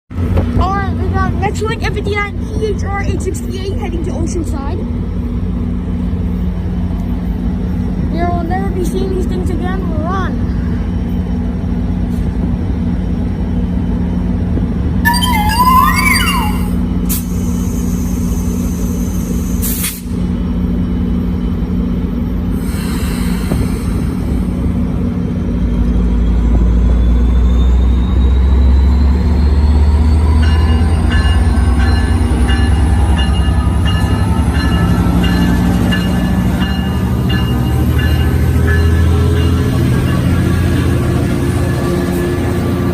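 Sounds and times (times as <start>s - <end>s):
repeating ringing tone: 15.1s - 17.0s
rising whine: 15.1s - 17.2s.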